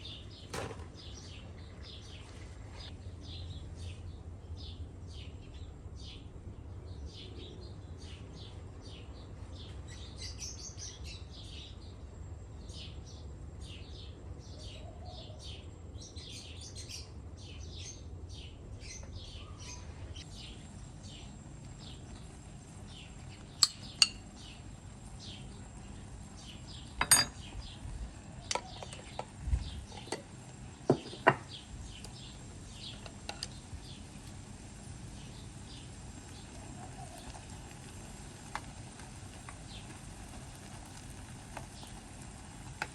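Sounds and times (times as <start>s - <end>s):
small birds chirping: 0.0s - 42.9s
metal cookware clinking: 23.6s - 24.4s, 27.0s - 27.5s.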